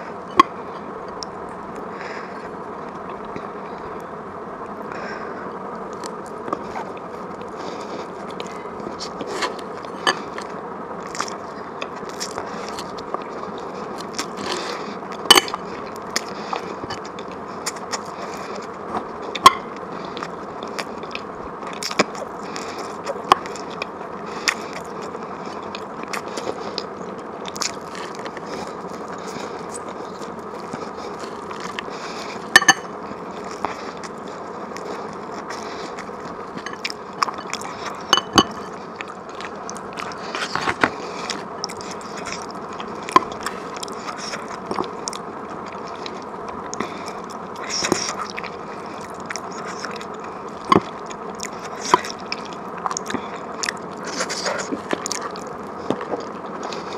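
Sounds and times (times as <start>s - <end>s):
steady hiss: 0.0s - 56.9s
chewing and wet mouth sounds: 5.9s - 56.9s.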